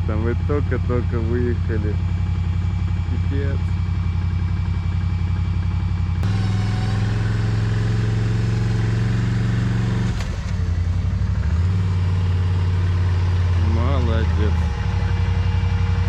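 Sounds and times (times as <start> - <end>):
atv engine revving under load: 6.1 - 16.0.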